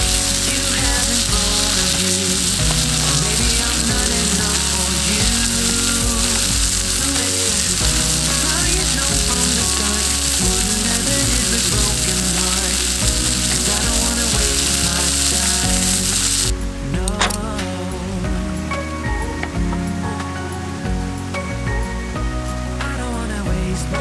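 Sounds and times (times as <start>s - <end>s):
steak sizzling in a frying pan: 0.0s - 16.5s.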